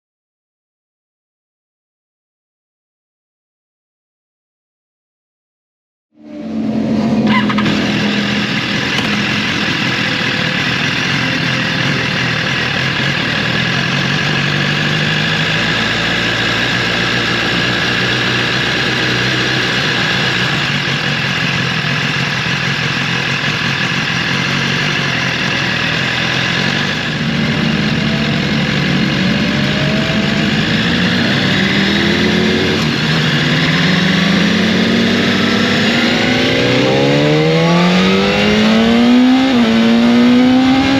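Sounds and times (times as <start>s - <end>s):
motorcycle engine revving: 6.2s - 40.9s.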